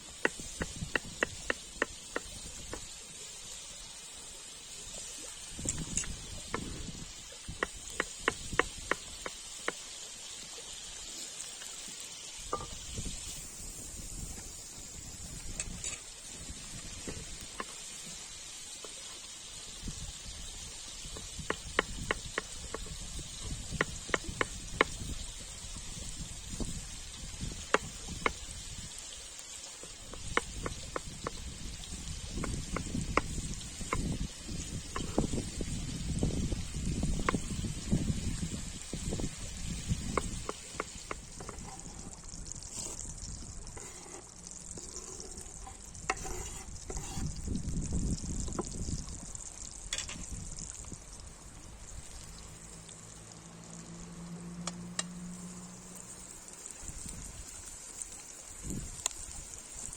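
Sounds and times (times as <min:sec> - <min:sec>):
steady high hiss: 0:00.0 - 0:47.3
food sizzling in a pan: 0:00.0 - 0:59.9
utensil clicking against pan: 0:00.2 - 0:02.9, 0:07.6 - 0:09.8, 0:30.1 - 0:31.4.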